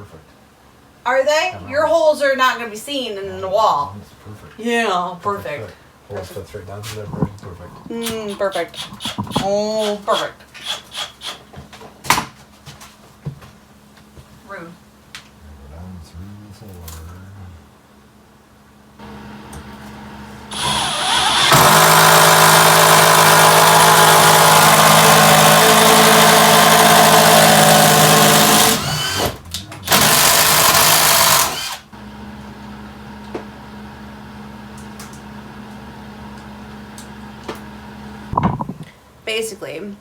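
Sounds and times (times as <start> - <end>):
quiet steady hum: 0.0 - 9.8, 13.6 - 21.0
electric power tool running: 19.0 - 32.4.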